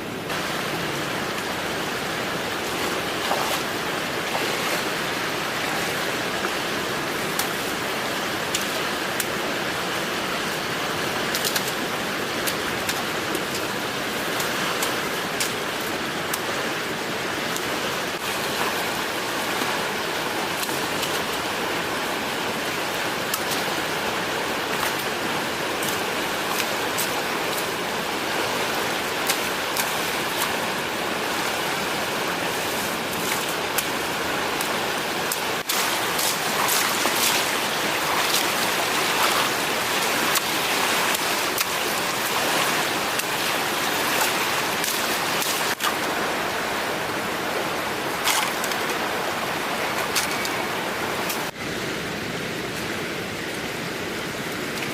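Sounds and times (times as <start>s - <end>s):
water rushing: 0.0s - 54.9s.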